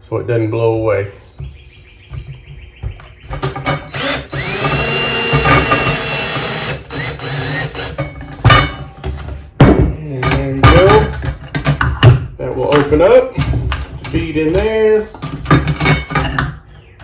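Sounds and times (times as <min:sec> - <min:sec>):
power drill driving screws: 0:03.9 - 0:08.0.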